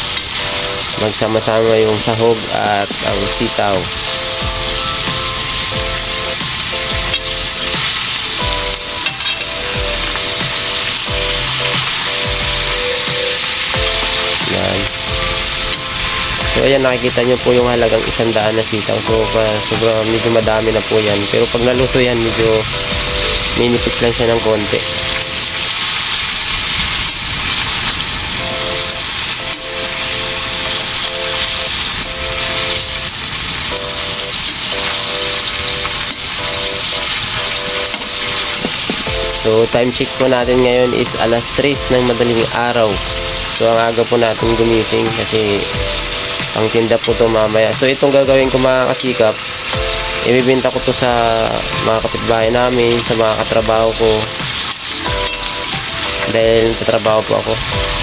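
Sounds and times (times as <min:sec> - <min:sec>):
background music with held notes: 0:00.0 - 0:58.0
beans sizzling in a pan: 0:00.0 - 0:58.0
metal spatula stirring: 0:09.0 - 0:10.3.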